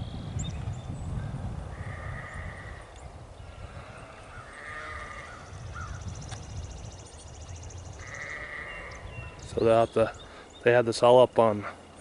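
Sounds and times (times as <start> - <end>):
wind rumble on microphone: 0.0 - 10.3
farm animal crying: 1.7 - 2.8, 3.4 - 6.0, 7.9 - 9.4.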